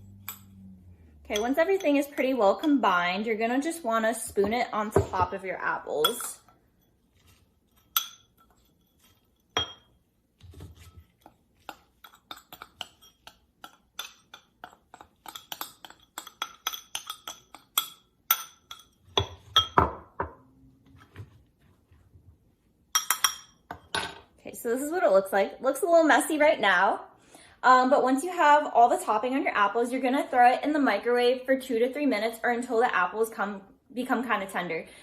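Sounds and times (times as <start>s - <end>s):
spoon clinking against dish: 11.6s - 19.8s, 22.9s - 24.0s.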